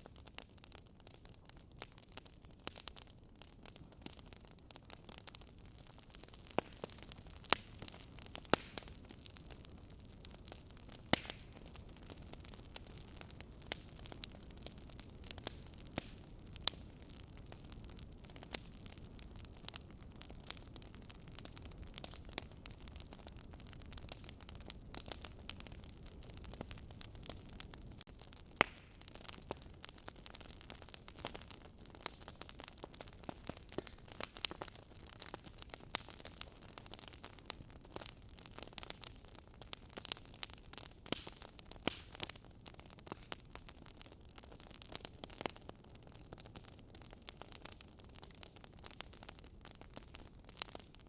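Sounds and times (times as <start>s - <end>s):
wood fire crackling: 0.0s - 51.0s.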